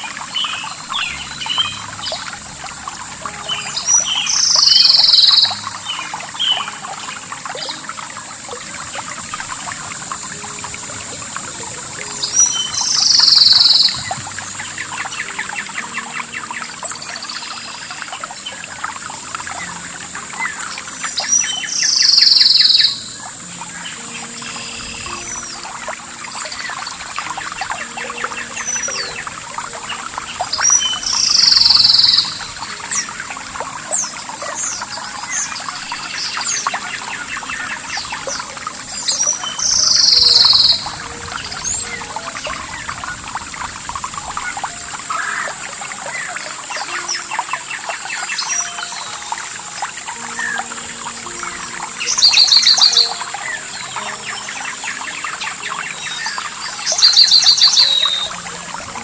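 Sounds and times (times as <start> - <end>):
small birds chirping: 0.0 - 59.0
trickling water: 0.0 - 59.0.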